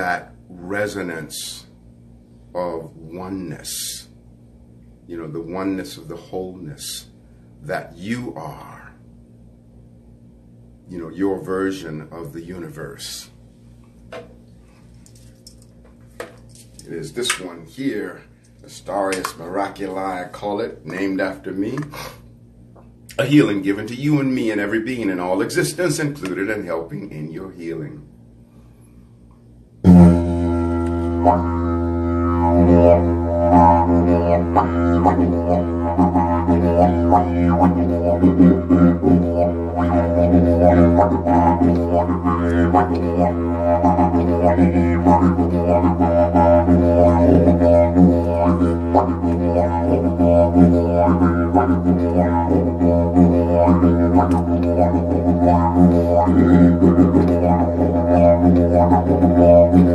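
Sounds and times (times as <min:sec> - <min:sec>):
didgeridoo drone: 0:29.8 - 0:59.9.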